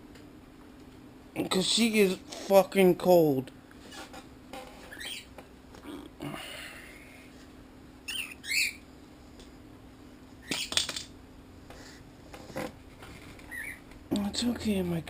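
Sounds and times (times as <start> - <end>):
pet bird squawking: 4.9 - 5.3, 8.0 - 8.8, 13.4 - 13.8.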